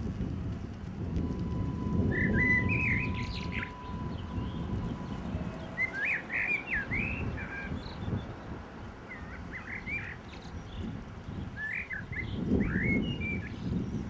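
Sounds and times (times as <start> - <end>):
steady low rumble: 0.0 - 8.7
birds chirping: 1.2 - 14.0.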